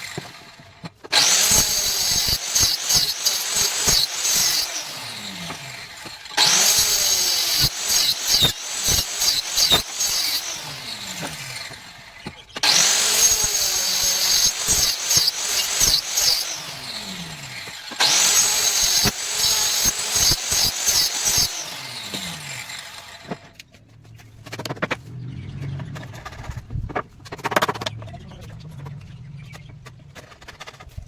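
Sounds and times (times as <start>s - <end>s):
electric power tool whining: 0.0s - 23.6s.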